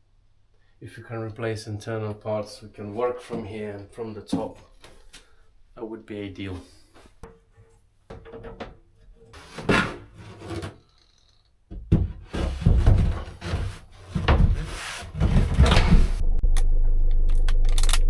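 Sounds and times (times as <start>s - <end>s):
rubbing and scraping handling noise: 2.8s - 5.2s, 6.4s - 16.2s.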